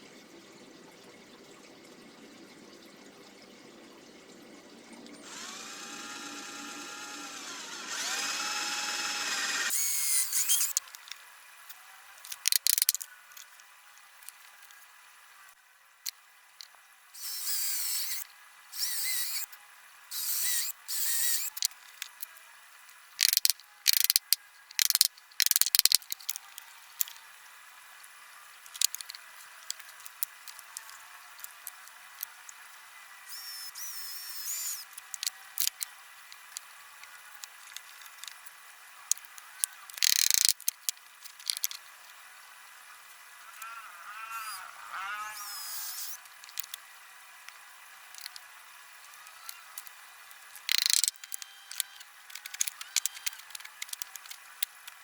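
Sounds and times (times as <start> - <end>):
electric drill motor running: 5.2 - 10.7, 17.2 - 18.2, 18.8 - 19.5, 20.1 - 21.6, 43.6 - 46.2
sharp clicks: 39.9 - 41.8, 50.6 - 55.0.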